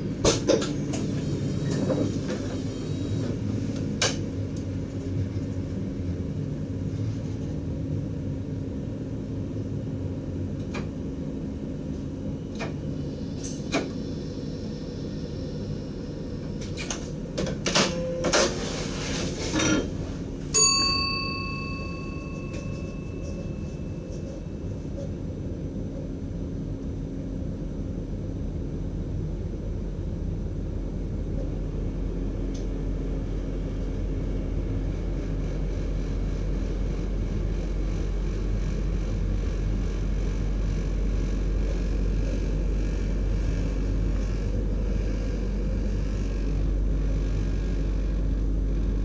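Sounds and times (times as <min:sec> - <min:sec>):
low electrical hum: 0:02.9 - 0:49.0
bell-like chime: 0:20.6 - 0:23.9.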